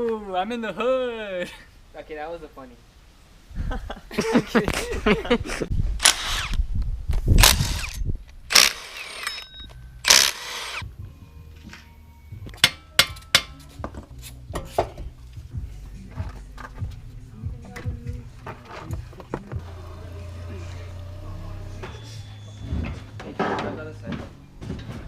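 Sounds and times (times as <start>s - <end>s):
power tool bursts: 6.0s - 6.6s, 7.4s - 9.4s, 10.0s - 10.8s.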